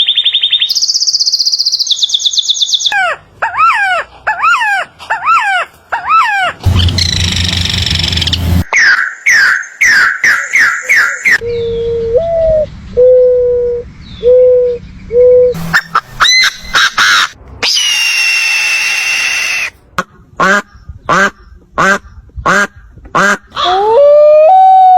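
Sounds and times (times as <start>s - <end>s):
bird calls: 0.0s - 19.7s
low hooting notes: 6.6s - 8.7s
long high bird screech: 17.6s - 19.8s.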